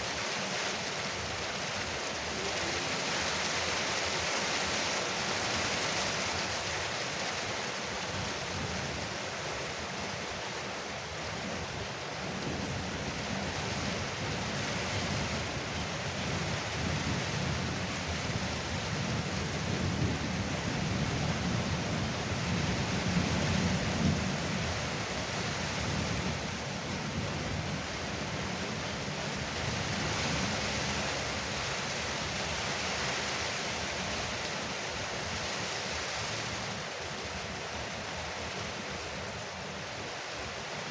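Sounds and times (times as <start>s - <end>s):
heavy rain drumming on a roof: 0.0s - 40.9s.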